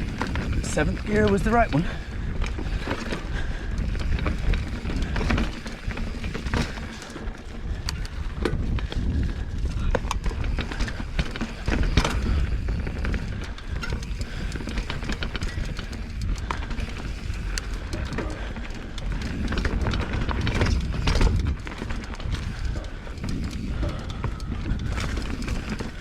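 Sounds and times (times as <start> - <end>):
bike clicks and rattles: 0.0 - 26.0
bike tyre noise: 0.0 - 26.0.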